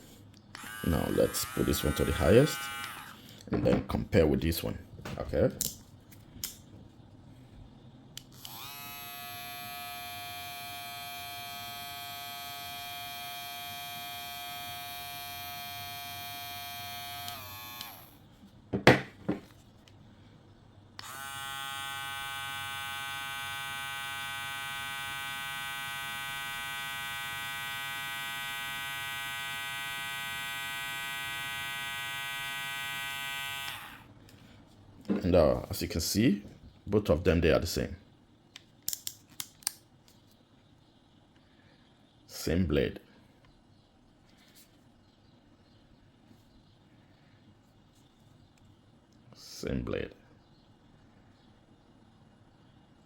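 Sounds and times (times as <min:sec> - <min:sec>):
electric hair clipper humming: 0:00.6 - 0:03.2, 0:08.3 - 0:18.2, 0:21.0 - 0:34.1.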